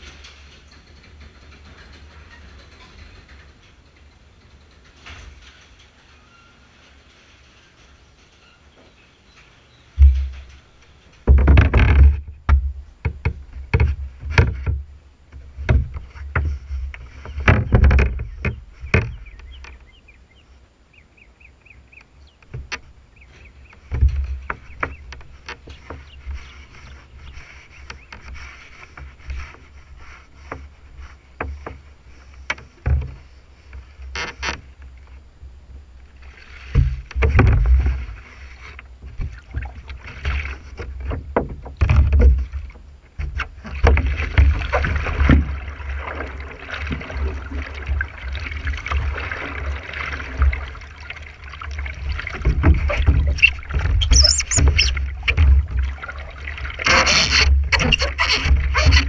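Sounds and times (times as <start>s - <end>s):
wind rumbling on microphone: 9.3s - 59.0s
paddle strokes in water: 10.0s - 21.1s, 22.0s - 59.0s
rushing water: 36.0s - 59.0s.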